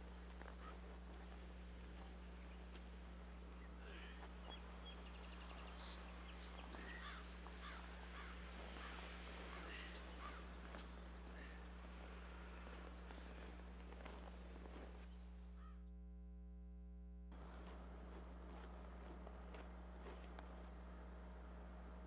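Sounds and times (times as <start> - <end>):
low electrical hum: 0.0 - 22.0
bird trill: 3.6 - 11.6.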